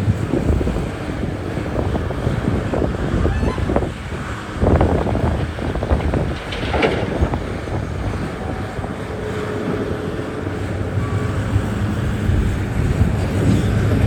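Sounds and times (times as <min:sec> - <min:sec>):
heavy diesel machinery running: 0:00.0 - 0:14.0
wind buffeting microphone: 0:00.0 - 0:14.0
rattling and clatter: 0:01.7 - 0:09.9.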